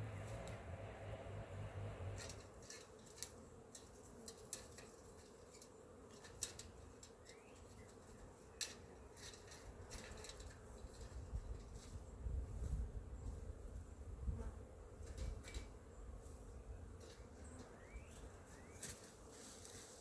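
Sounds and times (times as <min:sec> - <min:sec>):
faint steady hum: 0:00.0 - 0:19.8
dry sticks and leaves crackling: 0:01.8 - 0:12.0.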